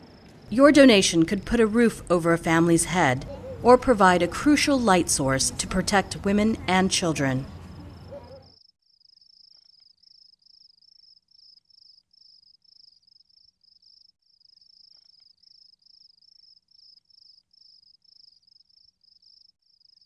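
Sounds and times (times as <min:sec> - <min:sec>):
cricket chirping: 0:07.5 - 0:20.0.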